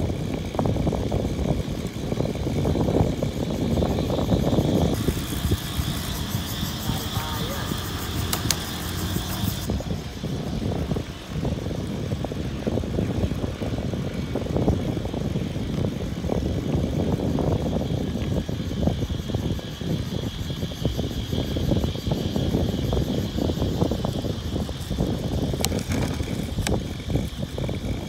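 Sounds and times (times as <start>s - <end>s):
wind buffeting microphone: 0.0s - 28.0s
high hiss: 2.7s - 15.2s, 16.0s - 28.0s.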